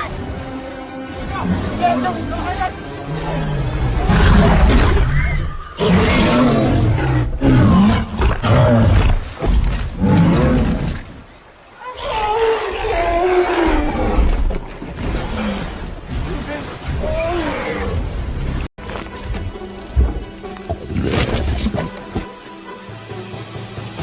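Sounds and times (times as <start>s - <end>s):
large animal roaring: 3.1s - 9.2s.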